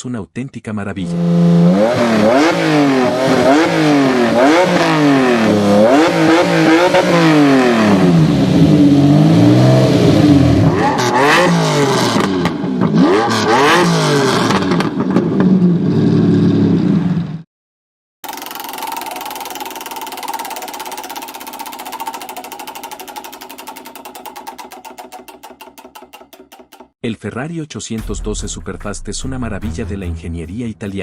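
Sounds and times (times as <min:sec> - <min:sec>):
car engine revving: 0:01.0 - 0:16.3.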